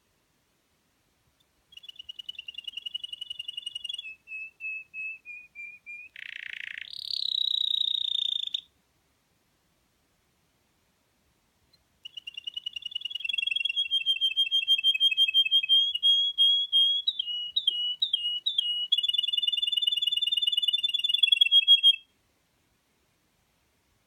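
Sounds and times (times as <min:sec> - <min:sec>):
canary singing trill: 0:01.7 - 0:08.7, 0:11.7 - 0:22.1.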